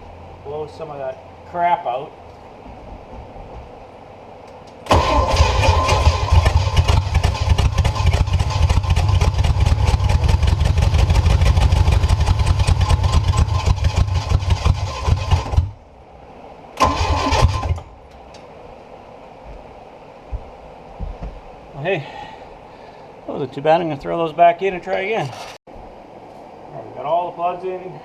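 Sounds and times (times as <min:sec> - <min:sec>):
engine cranking on starter: 0:04.8 - 0:15.8, 0:16.8 - 0:17.9.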